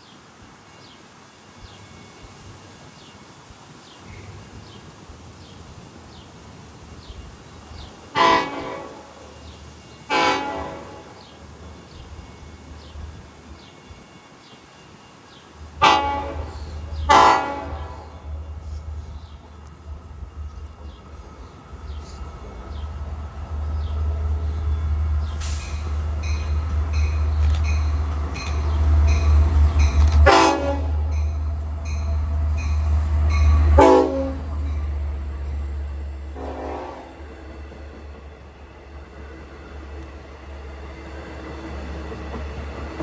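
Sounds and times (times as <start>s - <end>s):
train horn blasts: 8.1s - 11.4s, 15.7s - 19.3s, 25.3s - 35.0s, 36.3s - 37.4s.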